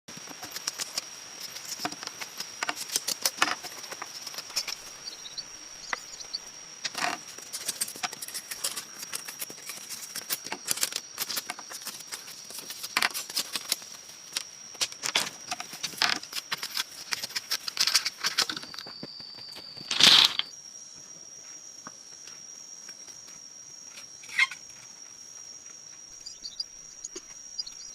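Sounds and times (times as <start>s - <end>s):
high-pitched insect drone: 0.1s - 27.9s
sharp clicks and crackles: 0.2s - 4.9s.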